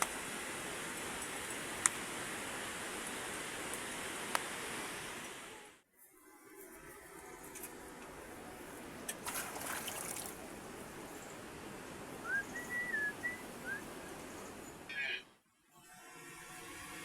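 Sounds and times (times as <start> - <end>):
short whistled chirps: 12.2 - 13.9.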